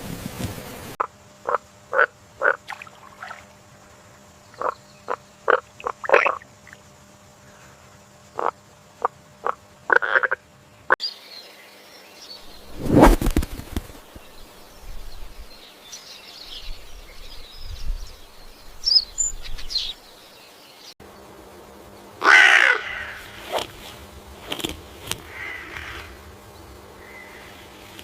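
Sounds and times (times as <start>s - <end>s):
harsh caw-like bird call: 22.2s - 23.4s, 25.3s - 26.2s.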